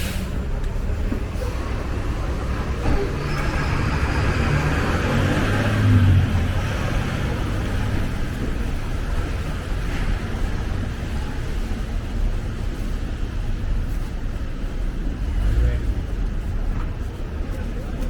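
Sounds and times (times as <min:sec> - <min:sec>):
rumble of traffic: 0:00.0 - 0:18.0
vehicle passing close: 0:01.3 - 0:08.7.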